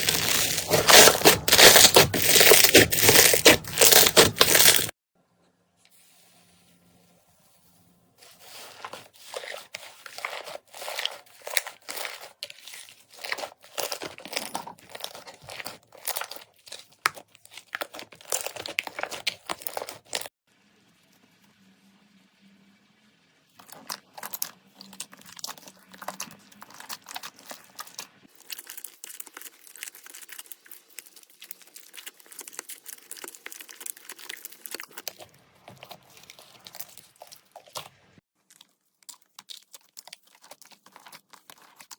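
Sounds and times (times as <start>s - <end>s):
slime squished by hand: 0.0s - 4.9s, 8.5s - 20.3s, 23.6s - 38.0s.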